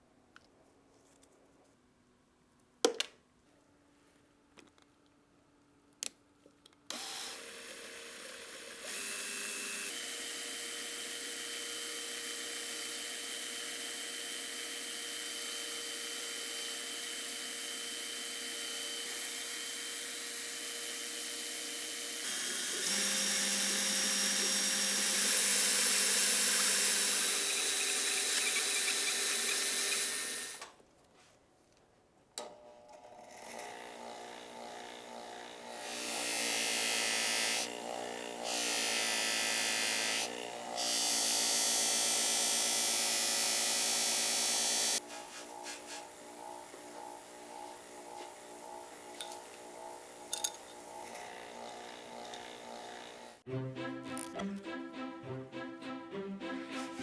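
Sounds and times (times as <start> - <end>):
small electric power tool running: 6.9 - 30.7, 32.9 - 53.4.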